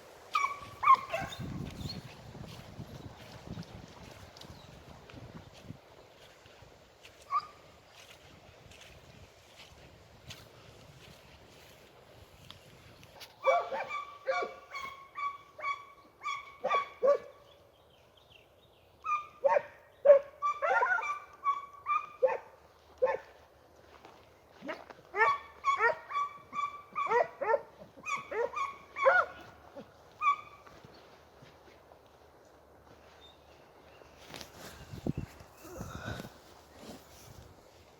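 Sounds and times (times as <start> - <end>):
hounds barking and yelping: 0.3 - 1.7, 7.2 - 7.6, 13.3 - 17.4, 19.0 - 23.4, 24.6 - 30.9.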